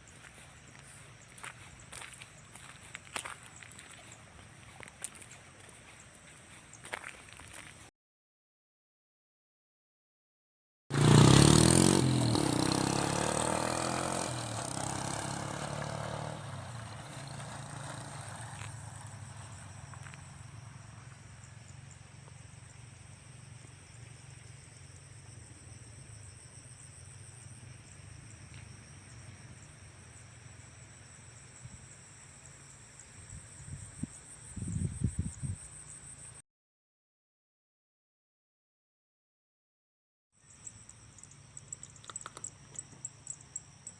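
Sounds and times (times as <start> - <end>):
engine running: 10.9 - 21.8.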